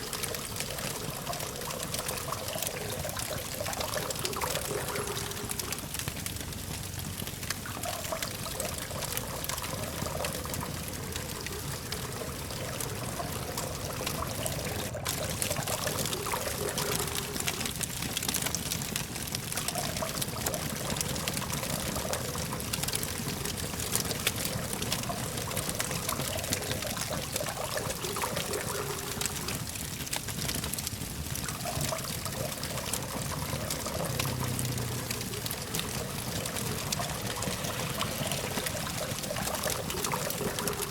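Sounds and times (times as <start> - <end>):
campfire crackling: 0.0 - 40.9
distant traffic hum: 31.6 - 40.9.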